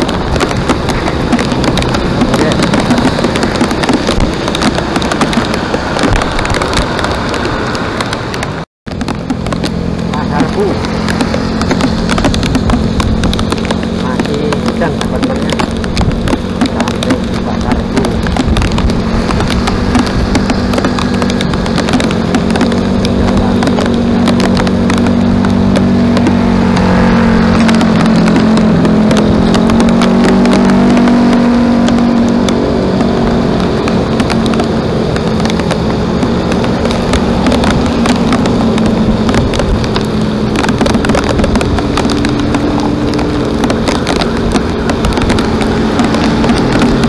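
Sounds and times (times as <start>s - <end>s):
crackle of small clicks: 0.0s - 47.0s
vehicle engine humming: 0.0s - 47.0s.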